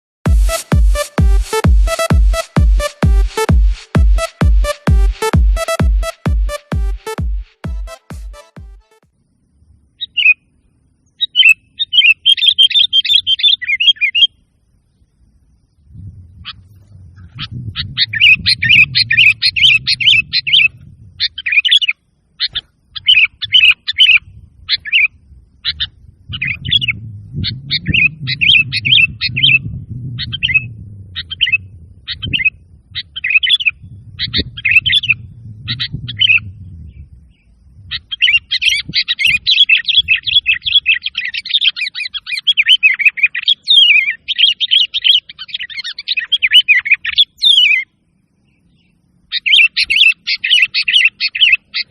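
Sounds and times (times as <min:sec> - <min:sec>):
bulbul singing: 0:00.2 - 0:51.9
low rumble: 0:15.7 - 0:21.4, 0:24.1 - 0:38.1.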